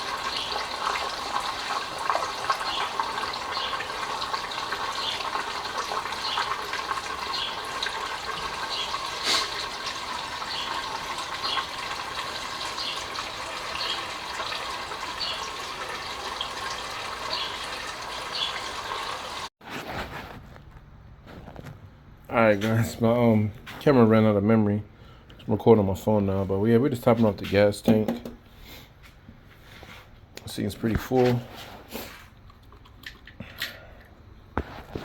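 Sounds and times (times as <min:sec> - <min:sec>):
fuel pouring and glugging: 0:00.0 - 0:19.5.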